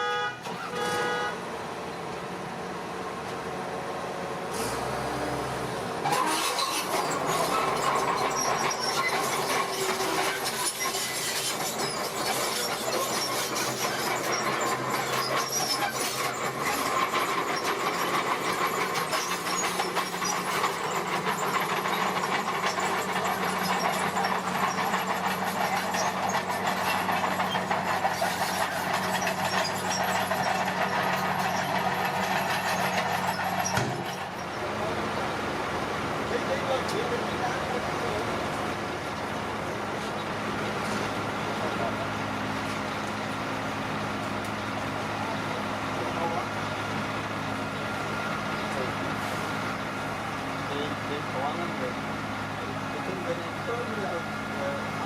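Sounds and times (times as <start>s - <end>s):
bulldozer diesel engine running: 0.0s - 55.0s
tracks and blade clattering: 6.1s - 34.4s.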